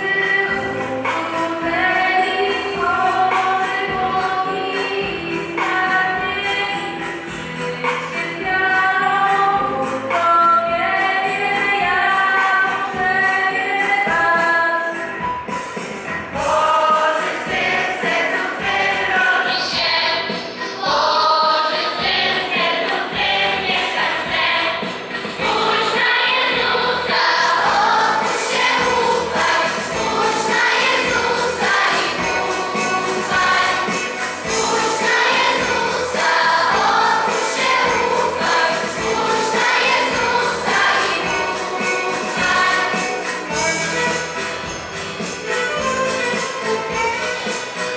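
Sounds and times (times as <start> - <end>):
choir singing a carol: 0.0 - 7.1, 16.4 - 46.4.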